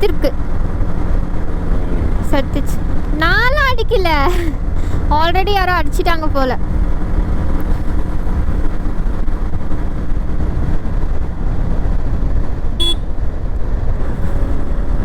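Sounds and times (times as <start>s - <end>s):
motorcycle engine: 0.0s - 15.0s
wind rumble: 0.0s - 15.0s
vehicle horn toot: 12.8s - 13.1s.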